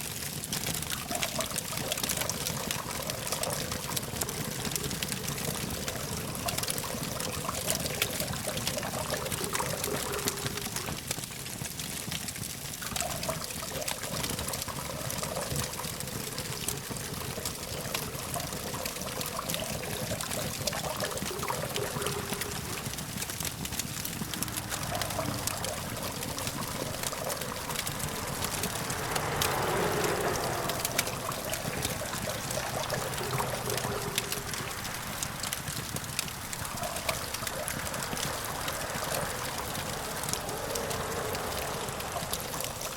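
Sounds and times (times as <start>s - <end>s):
distant traffic hum: 0.0s - 11.7s, 12.3s - 42.9s
campfire crackling and popping: 0.0s - 42.9s.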